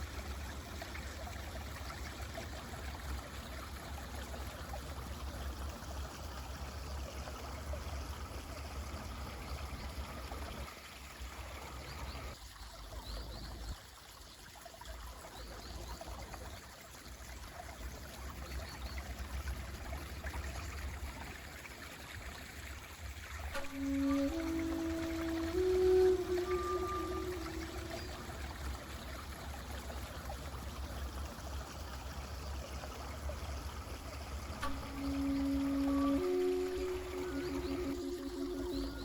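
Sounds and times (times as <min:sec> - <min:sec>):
stream rushing water: 0:00.0 - 0:12.9, 0:13.6 - 0:39.0.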